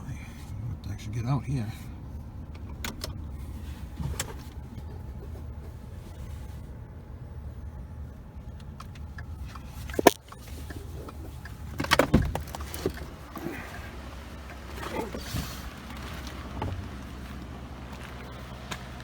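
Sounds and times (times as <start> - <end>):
low rumble: 0.0 - 19.0
car door shutting: 2.6 - 6.2, 8.7 - 17.4
knocks and rattles: 9.9 - 13.2.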